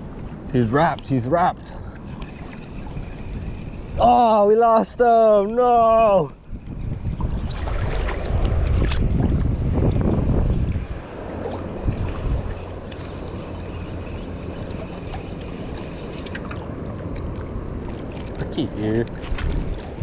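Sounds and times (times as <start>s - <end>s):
water lapping and sloshing: 0.0s - 20.0s
wind rumbling on microphone: 0.0s - 20.0s.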